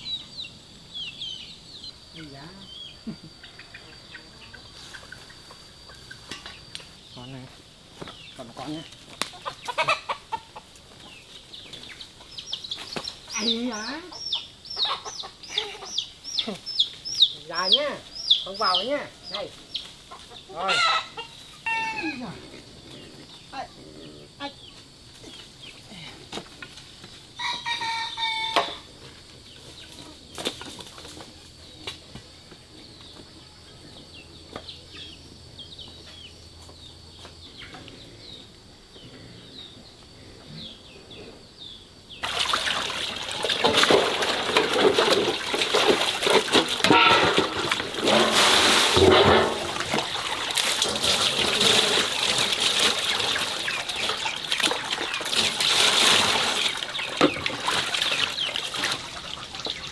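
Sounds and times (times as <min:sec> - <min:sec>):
quiet farmyard sounds: 0:00.0 - 0:59.9
animal call: 0:20.5 - 0:24.6
water sloshing and splashing: 0:42.2 - 0:59.9.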